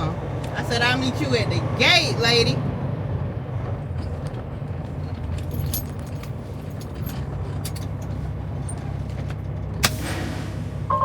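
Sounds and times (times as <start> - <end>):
diesel engine idling: 0.0 - 11.0
small clicks and jingles: 3.8 - 9.8.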